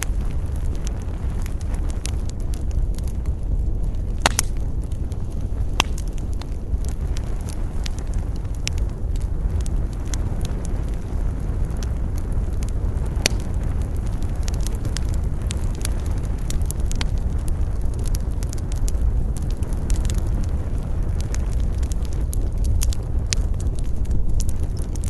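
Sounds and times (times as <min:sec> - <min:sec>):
campfire crackling and popping: 0:00.0 - 0:25.0
low rumble of wind: 0:00.0 - 0:25.0.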